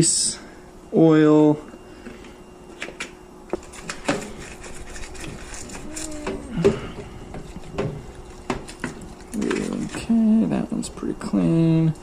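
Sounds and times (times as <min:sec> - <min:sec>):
scraper scraping plastic: 0:03.6 - 0:06.5.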